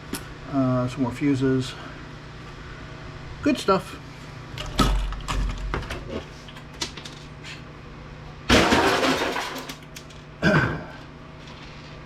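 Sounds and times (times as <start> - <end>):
scrap parts clattering onto pile: 8.5 - 10.2.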